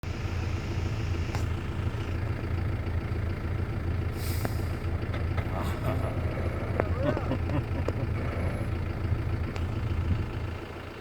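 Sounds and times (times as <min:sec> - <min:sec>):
engine running at low revs: 0:00.0 - 0:11.0
brief hiss: 0:04.2 - 0:04.7.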